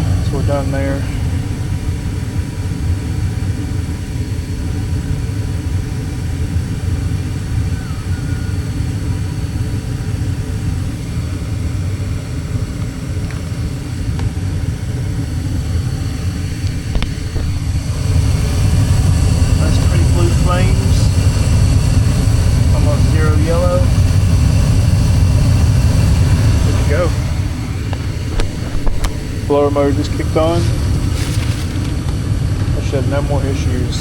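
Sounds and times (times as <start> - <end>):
gas furnace rumbling: 0.0 - 34.0.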